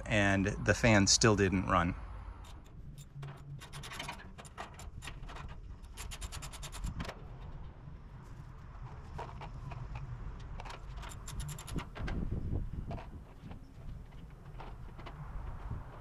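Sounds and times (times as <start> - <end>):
small hard parts clicking: 2.4 - 7.7, 8.9 - 16.0.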